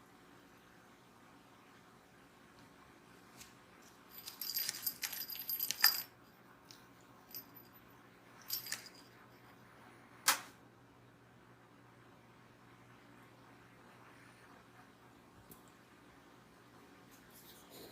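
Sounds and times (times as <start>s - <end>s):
small metal bell jingling: 4.1s - 6.1s, 7.3s - 7.8s, 8.4s - 9.2s.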